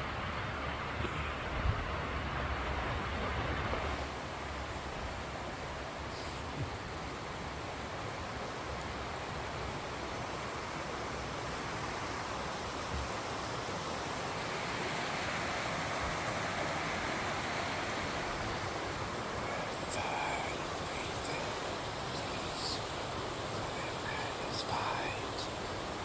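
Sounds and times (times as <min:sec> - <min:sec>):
steady rushing noise: 0:00.0 - 0:26.0.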